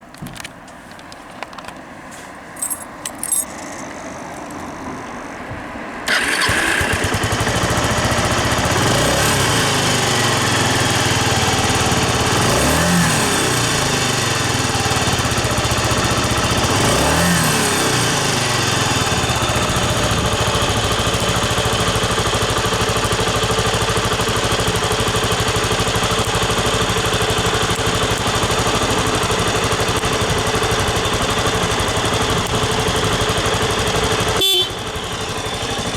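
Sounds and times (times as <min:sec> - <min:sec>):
motorcycle engine idling: 0:02.6 - 0:35.9
engine revving: 0:06.1 - 0:22.4.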